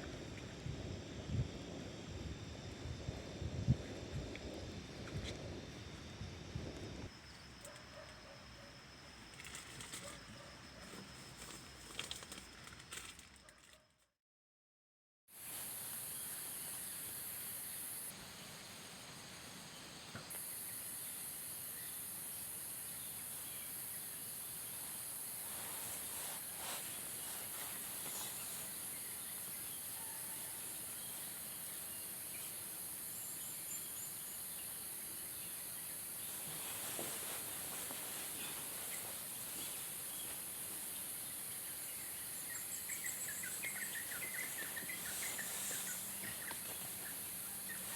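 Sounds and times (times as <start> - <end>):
high-pitched insect chorus: 0.0 - 13.4, 15.4 - 47.9
faint ticks and rustles: 3.7 - 13.9, 24.8 - 32.5, 36.2 - 47.9.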